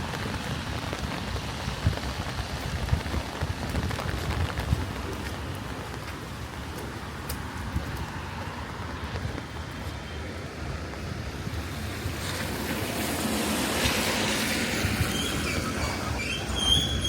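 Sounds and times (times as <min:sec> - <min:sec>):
rain hiss: 0:00.0 - 0:09.2, 0:10.3 - 0:17.0
vehicle passing on wet road: 0:00.0 - 0:17.0
high squealing tones: 0:14.9 - 0:17.0.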